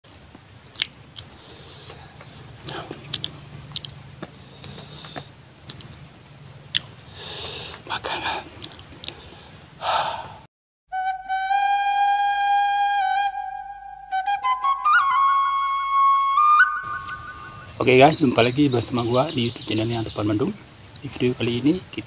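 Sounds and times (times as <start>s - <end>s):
steady high insect tone: 0.1s - 10.5s, 14.2s - 22.0s
birds twittering: 0.6s - 10.4s, 16.8s - 22.0s
man chewing crunchily: 0.7s - 2.0s, 2.7s - 6.0s, 6.7s - 7.6s.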